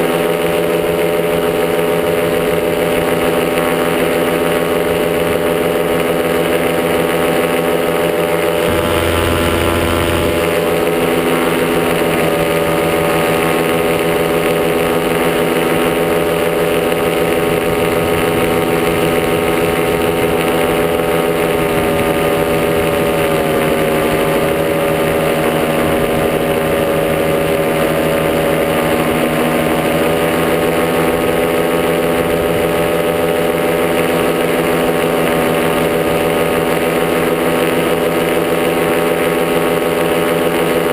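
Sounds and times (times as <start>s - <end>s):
paramotor engine running: 0.0s - 40.9s
short low rumble: 8.7s - 10.7s.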